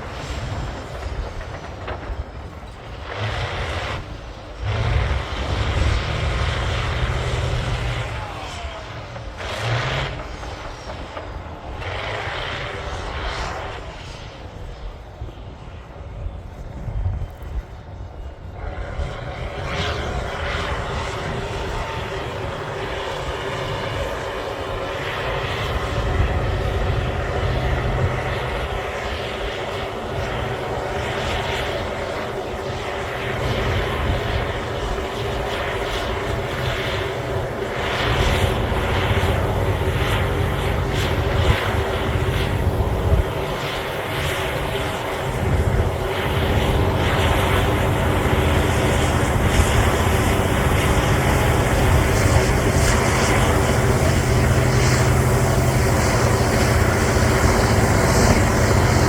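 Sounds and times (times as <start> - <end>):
bulldozer diesel engine running: 0.0 - 12.8, 21.4 - 59.0.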